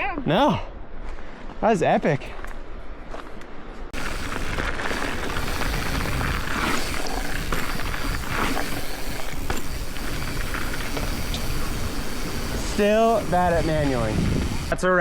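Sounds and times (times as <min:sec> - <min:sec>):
wind rushing over microphone: 0:03.9 - 0:14.8
bike tyres rolling over gravel: 0:04.0 - 0:14.7.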